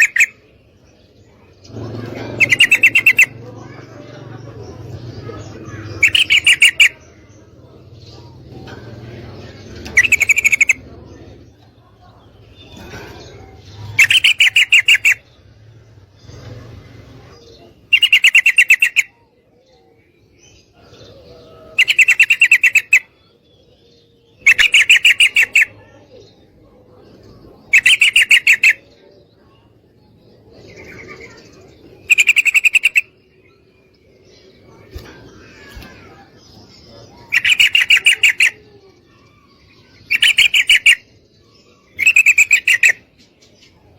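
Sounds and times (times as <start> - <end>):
bird chattering calls: 0.0 - 0.4, 1.6 - 15.5, 17.2 - 19.2, 21.7 - 23.2, 24.4 - 26.0, 27.6 - 28.9, 30.6 - 33.7, 34.6 - 43.9
fainter bird calls: 0.0 - 0.5, 1.8 - 3.8, 5.2 - 7.0, 9.8 - 11.0, 12.1 - 15.5, 17.2 - 19.4, 20.7 - 23.2, 24.4 - 26.0, 26.9 - 29.7, 30.6 - 34.0, 34.6 - 43.9.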